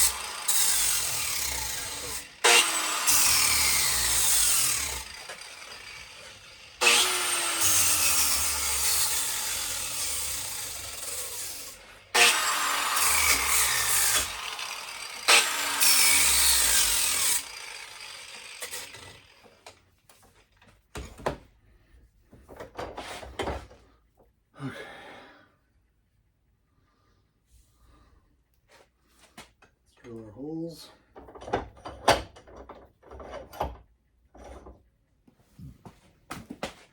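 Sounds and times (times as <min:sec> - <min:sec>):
power tool winding down: 0:00.0 - 0:19.7.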